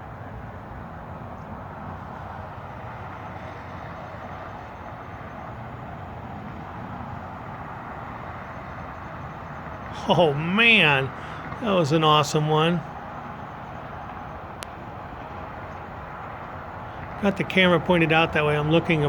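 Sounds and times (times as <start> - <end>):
distant highway traffic: 0.0 - 19.0.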